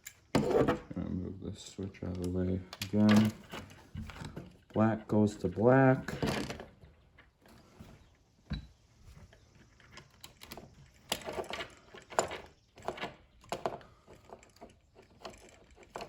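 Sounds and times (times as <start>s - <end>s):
clicks and rattles of switch handling: 2.0s - 6.6s.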